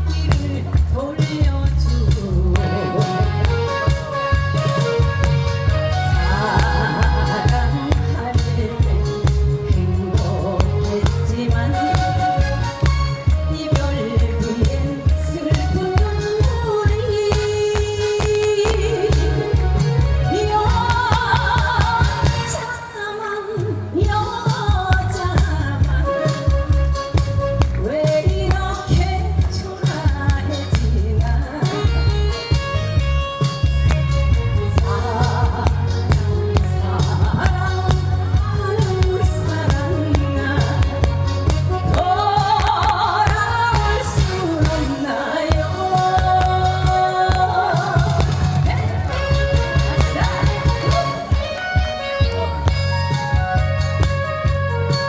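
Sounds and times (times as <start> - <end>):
band with steady beat: 0.0 - 55.0
person singing pop melody: 0.0 - 55.0
pop backing track with drums: 0.0 - 55.0.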